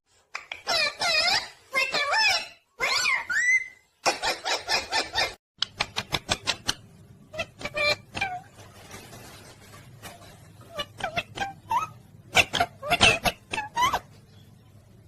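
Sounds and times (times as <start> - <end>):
parrot chattering and squawking: 0.5 - 8.5, 10.6 - 14.2.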